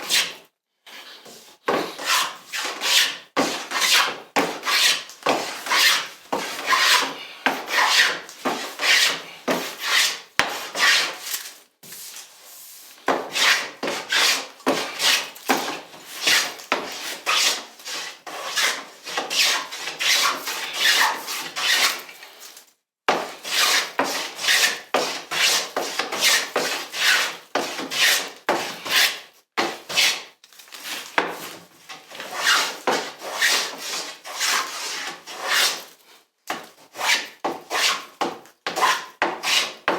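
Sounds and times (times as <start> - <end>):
hand tool rubbing wood: 2.0 - 11.2, 12.7 - 22.0, 37.0 - 39.8.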